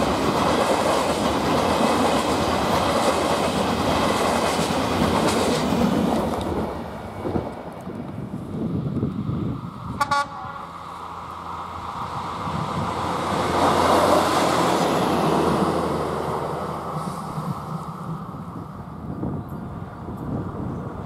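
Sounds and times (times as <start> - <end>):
train passing close by: 0.0 - 21.0
locomotive horn toot: 10.0 - 10.7.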